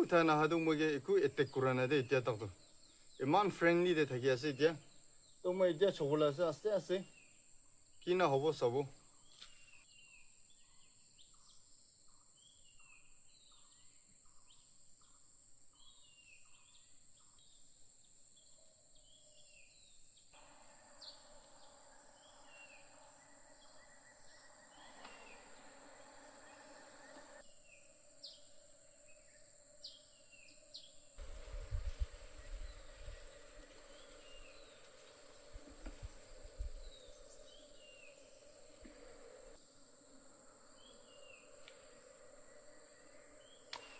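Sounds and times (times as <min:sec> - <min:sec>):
rapid pulsing call: 0:20.4 - 0:27.4, 0:31.2 - 0:43.9
short falling bird chirps: 0:20.4 - 0:27.4, 0:30.8 - 0:39.6, 0:40.7 - 0:43.9
high-pitched insect drone: 0:20.4 - 0:43.9
wind rumbling on microphone: 0:31.2 - 0:39.6.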